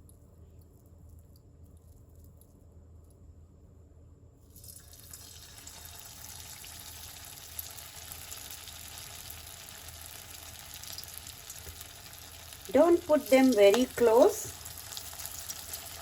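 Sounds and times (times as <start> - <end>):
food sizzling in hot oil: 4.6 - 16.0.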